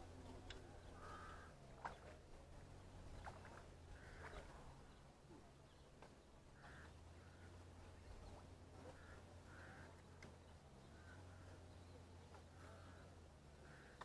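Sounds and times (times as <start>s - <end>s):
faint short bird calls: 0.2s - 2.1s, 6.5s - 14.0s.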